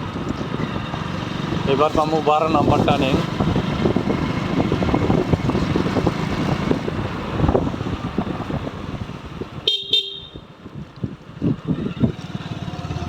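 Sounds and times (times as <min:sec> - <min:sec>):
motorcycle engine and road rumble: 0:00.0 - 0:13.0
wind buffeting microphone: 0:00.0 - 0:13.0
vehicle horn toots: 0:09.6 - 0:10.5.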